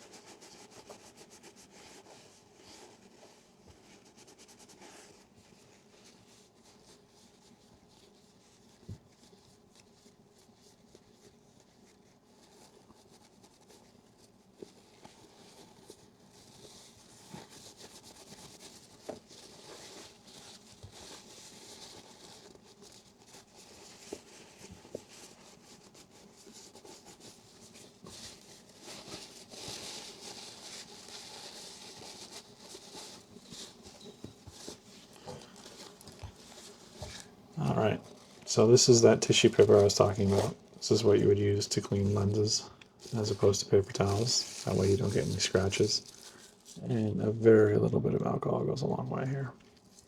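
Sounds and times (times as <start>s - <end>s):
hands rustling small objects: 15.1s - 47.1s.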